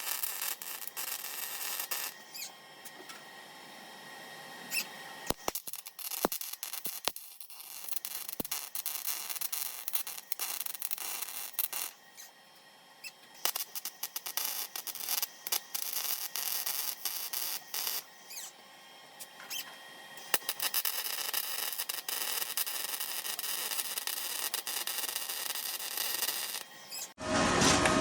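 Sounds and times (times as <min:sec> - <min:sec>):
welding arc crackling: 0:00.0 - 0:03.0, 0:04.7 - 0:12.3, 0:13.0 - 0:18.5, 0:20.2 - 0:27.2.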